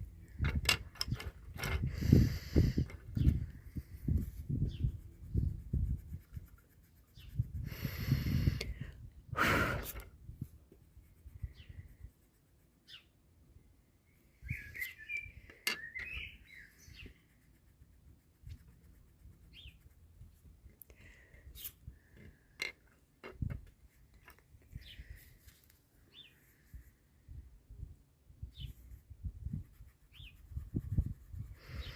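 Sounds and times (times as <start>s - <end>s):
wind rumble on microphone: 0.0s - 12.2s, 23.3s - 23.8s, 26.7s - 31.9s
small birds chirping: 1.0s - 5.6s, 6.5s - 8.4s, 11.1s - 12.2s, 12.8s - 13.2s, 14.0s - 17.6s, 19.4s - 20.0s, 24.6s - 25.4s, 26.0s - 26.8s, 28.4s - 29.0s, 29.8s - 31.9s.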